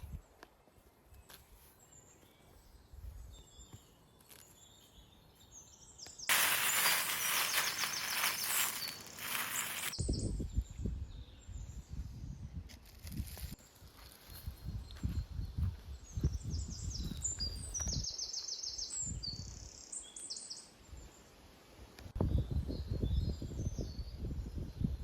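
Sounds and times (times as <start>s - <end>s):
birds chirping: 1.8s - 10.2s
loud steady hiss: 6.3s - 10.0s
wind on microphone: 10.0s - 13.6s, 14.4s - 18.1s, 22.2s - 25.0s.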